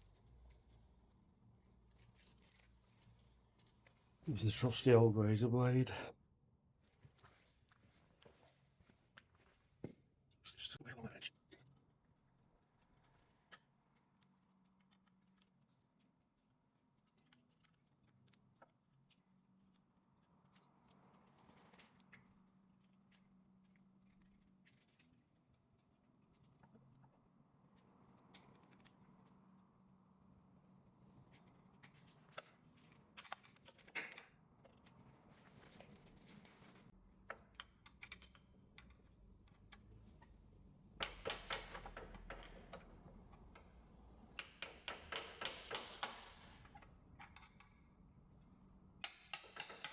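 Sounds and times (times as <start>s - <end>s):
clicks: 41.0s - 43.7s, 44.3s - 47.7s
razor blade scraping: 44.4s - 46.8s, 49.0s - 49.9s.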